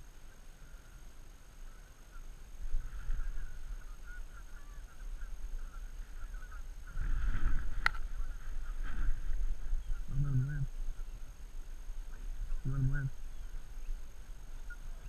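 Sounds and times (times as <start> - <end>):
geese calling: 0.0 - 15.0.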